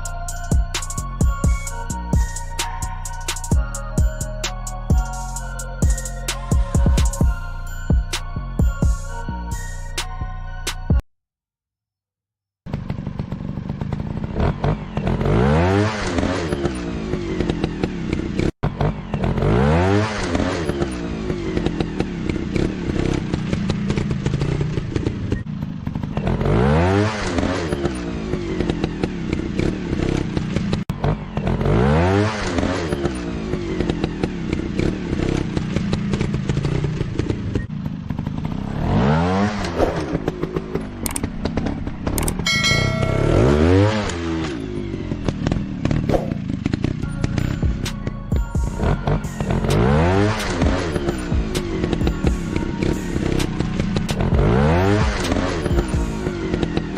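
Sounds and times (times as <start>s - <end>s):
dirt bike engines revving: 12.7s - 48.1s, 48.8s - 56.9s.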